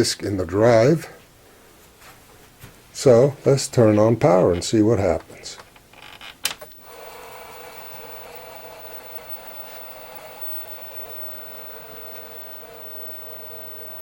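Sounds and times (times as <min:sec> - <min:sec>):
floppy drives humming: 0:06.7 - 0:14.0
high-pitched monitor whine: 0:06.8 - 0:14.0.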